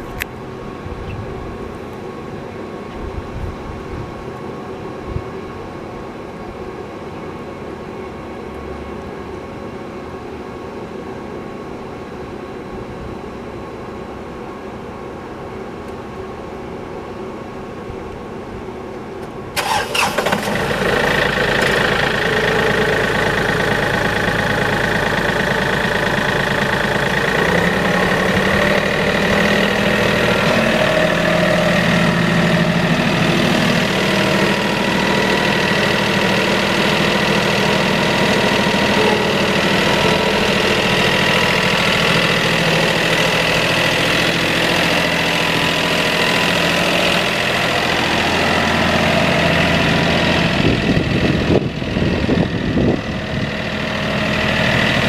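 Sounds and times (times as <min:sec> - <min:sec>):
diesel engine idling: 0:19.6 - 0:55.0.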